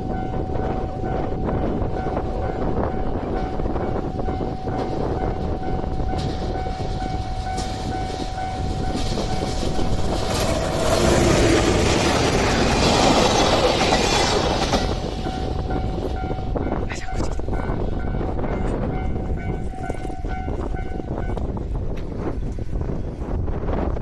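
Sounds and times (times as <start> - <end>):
train running noise: 0.0 - 24.0.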